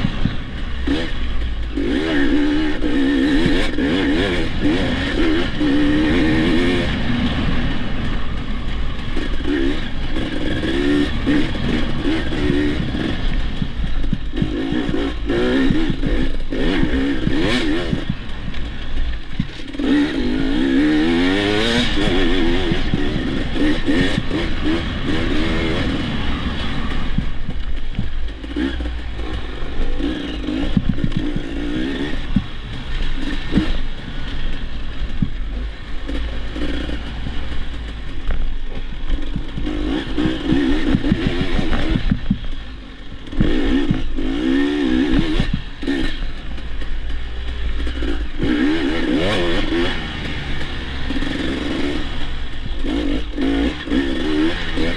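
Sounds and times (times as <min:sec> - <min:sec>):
dirt bike engine revving: 0:00.0 - 0:54.9
bike knocks and clatter: 0:38.1 - 0:42.5.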